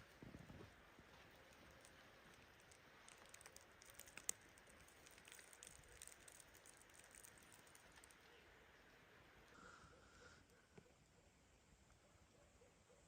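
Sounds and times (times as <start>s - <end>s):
faint small clicks and crackles: 0.0s - 8.4s.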